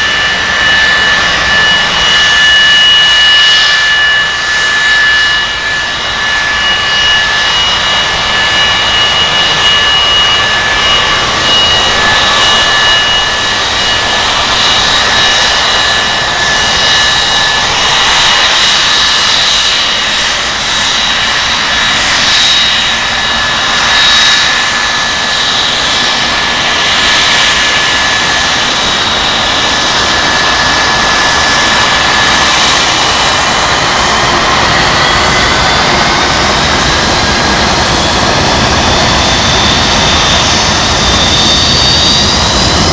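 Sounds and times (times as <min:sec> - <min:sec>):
high engine whine: 0:00.0 - 0:42.9
jet engines rushing: 0:00.0 - 0:42.9.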